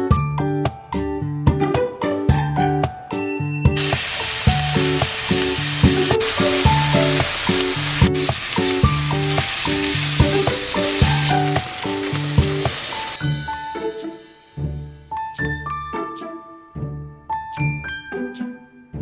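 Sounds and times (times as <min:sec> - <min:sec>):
food sizzling in a frying pan: 0:03.8 - 0:13.4.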